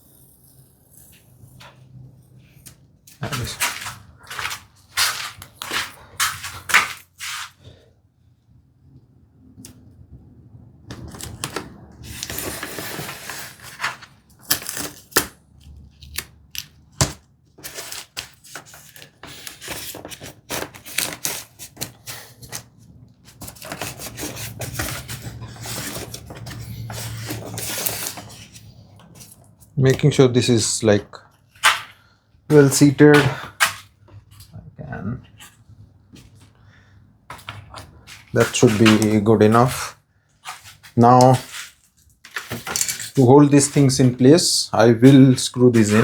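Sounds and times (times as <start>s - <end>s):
wood sliding and scraping: 3.2s - 7.6s, 10.9s - 14.1s, 23.3s - 30.2s, 31.6s - 33.9s, 37.3s - 46.0s.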